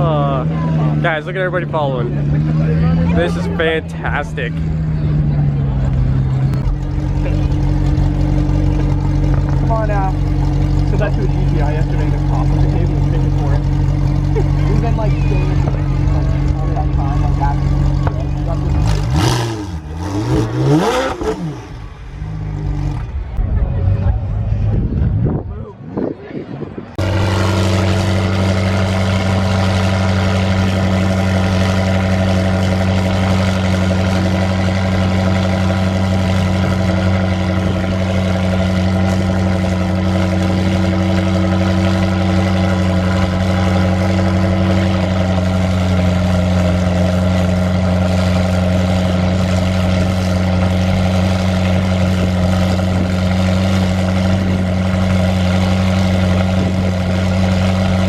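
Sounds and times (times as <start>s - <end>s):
car engine droning: 0.0s - 58.0s.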